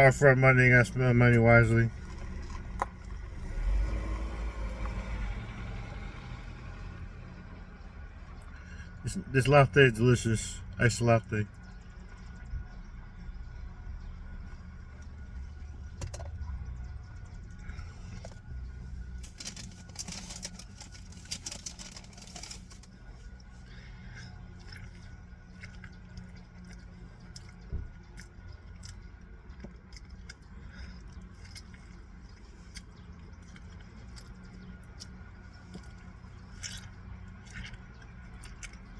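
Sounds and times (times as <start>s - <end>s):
steady low hum: 0.0s - 38.9s
rustling of handled objects: 19.2s - 23.3s.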